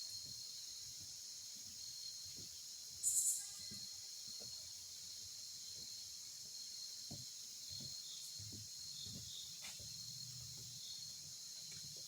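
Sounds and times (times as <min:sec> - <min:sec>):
crickets chirring: 0:03.0 - 0:04.5.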